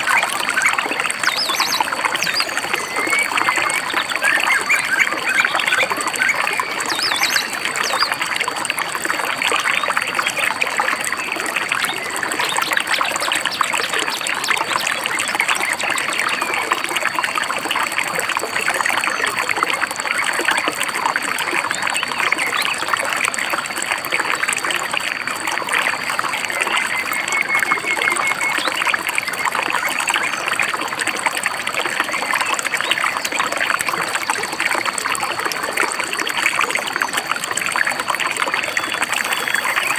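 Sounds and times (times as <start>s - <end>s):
river babbling over stones: 0.0s - 39.9s
bird chirps: 0.6s - 8.1s.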